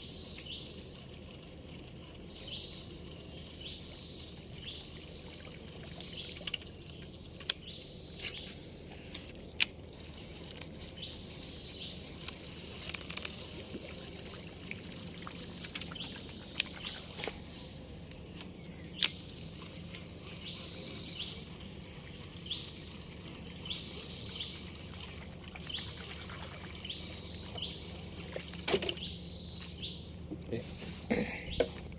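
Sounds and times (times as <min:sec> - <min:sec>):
outdoor background noise: 0:00.0 - 0:31.9
sharp clicks: 0:19.0 - 0:19.2.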